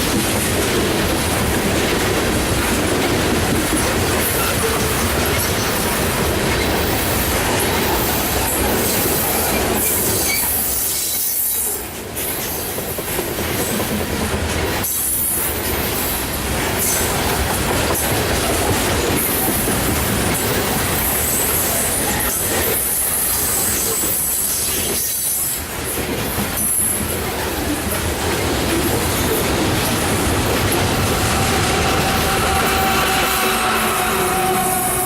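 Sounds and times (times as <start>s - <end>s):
train wheels clacking over rail joints: 0.0s - 35.0s
wheels squealing against rail: 3.8s - 12.7s, 18.0s - 25.7s, 29.1s - 35.0s.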